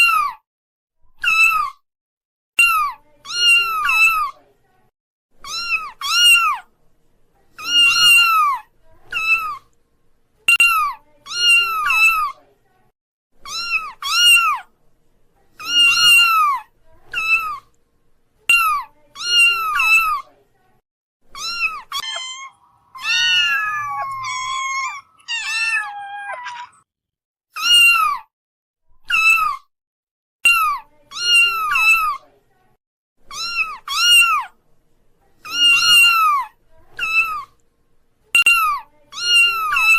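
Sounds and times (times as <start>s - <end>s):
kittens meowing: 5.4s - 6.6s, 7.6s - 9.6s, 13.5s - 14.6s, 15.6s - 17.6s, 21.4s - 26.8s, 33.3s - 34.5s, 35.5s - 37.5s, 38.4s - 39.9s.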